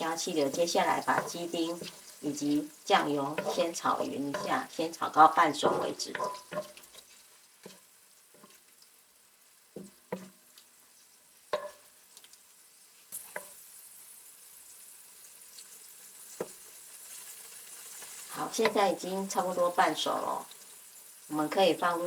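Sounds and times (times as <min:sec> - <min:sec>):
spatula scraping pan: 0:00.0 - 0:08.6
faint sizzle: 0:00.0 - 0:22.0.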